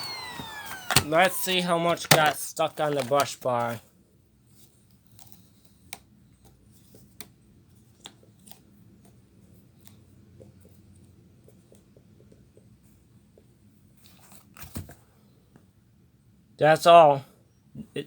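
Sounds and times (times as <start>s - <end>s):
loud plastic clack: 0.0s - 3.4s.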